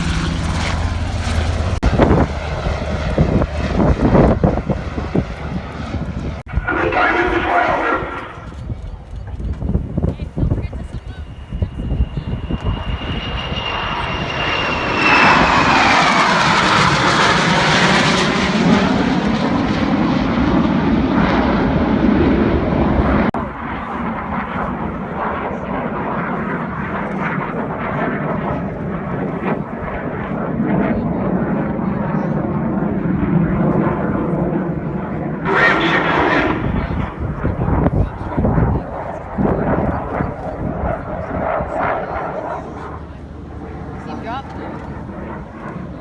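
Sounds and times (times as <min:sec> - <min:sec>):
high engine whine: 0:00.0 - 0:24.0, 0:35.4 - 0:40.7
jet engine roar: 0:00.0 - 0:46.0.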